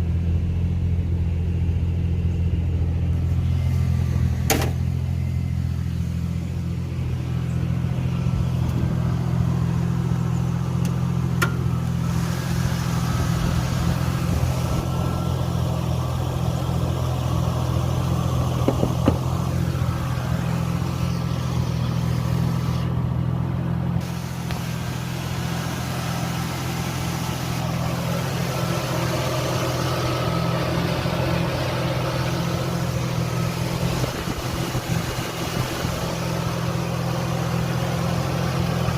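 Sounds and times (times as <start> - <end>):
car engine idling: 0.0 - 38.9
faint engine ticks: 10.4 - 12.0.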